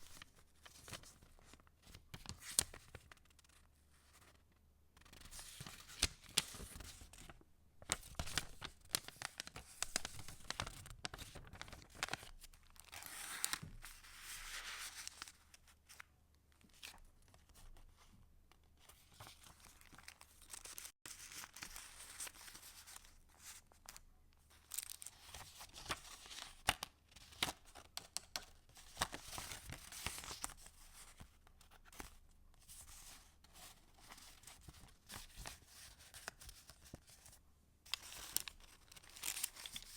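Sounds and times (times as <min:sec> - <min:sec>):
paper pages rustling: 0:05.0 - 0:16.0, 0:32.0 - 0:39.9.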